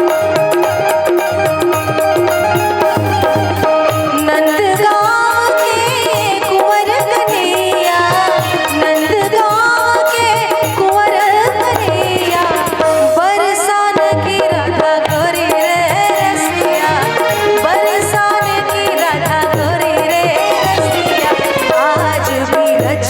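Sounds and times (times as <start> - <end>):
gliding folk melody: 0.0 - 5.5
hand drum rhythm: 0.0 - 23.0.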